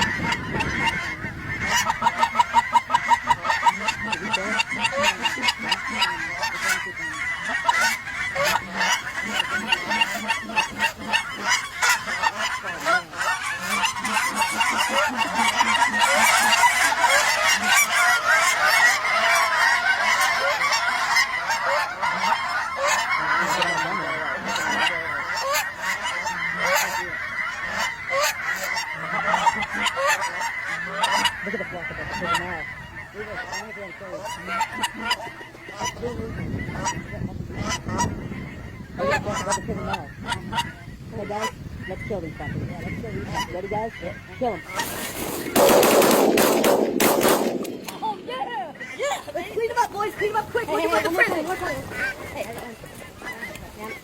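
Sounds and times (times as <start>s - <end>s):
geese honking: 0.0s - 54.0s.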